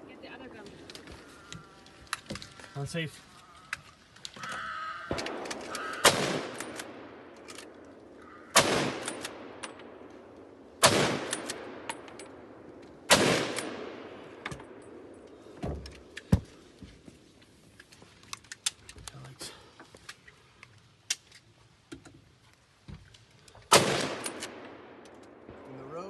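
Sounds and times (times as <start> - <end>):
gunshots with rolling echo: 4.8 - 15.3, 23.7 - 26.0.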